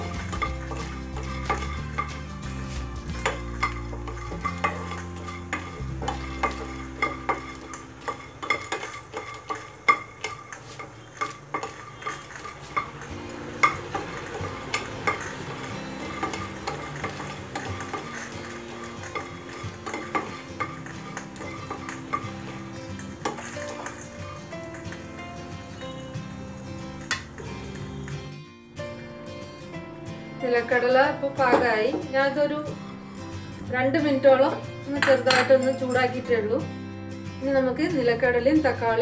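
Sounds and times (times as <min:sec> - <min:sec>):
peanuts rattling in pan: 0:00.0 - 0:28.1
spatula tapping pan: 0:00.0 - 0:28.2.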